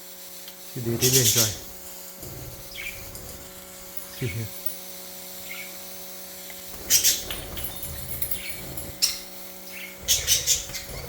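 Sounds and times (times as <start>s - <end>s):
budgies chirping faintly: 2.6s - 3.3s, 5.4s - 5.8s, 6.8s - 11.0s.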